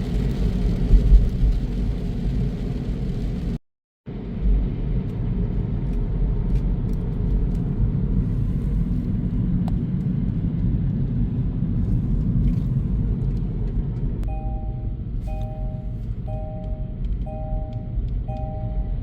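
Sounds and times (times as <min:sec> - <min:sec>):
truck engine and road rumble: 0:00.0 - 0:19.0
two-pitch electronic tone: 0:14.2 - 0:19.0.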